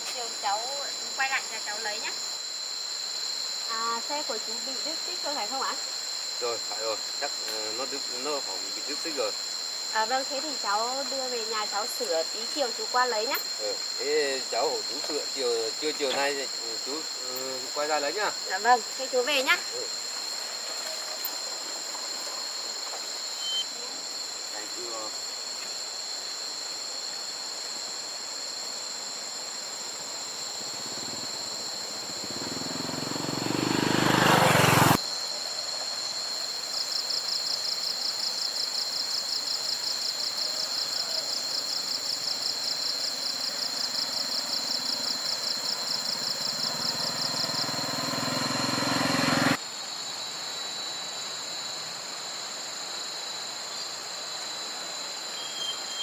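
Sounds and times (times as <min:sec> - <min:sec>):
rhythmic insect pulsing: 0:00.0 - 0:26.1, 0:29.6 - 0:35.2, 0:35.9 - 0:49.6
insect chirring: 0:00.0 - 0:51.9, 0:52.6 - 0:56.0
motor vehicle: 0:30.6 - 0:35.0, 0:45.8 - 0:49.6.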